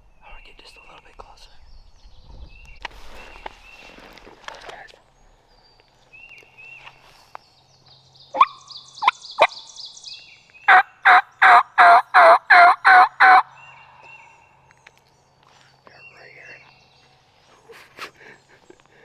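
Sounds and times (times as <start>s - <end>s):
turkey clucking: 8.4s - 8.6s, 10.7s - 13.5s
turkey yelping: 8.4s - 8.7s, 10.7s - 13.5s.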